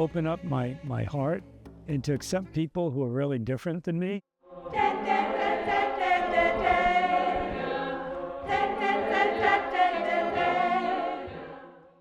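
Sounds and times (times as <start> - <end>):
group of voices singing: 4.4 - 12.0.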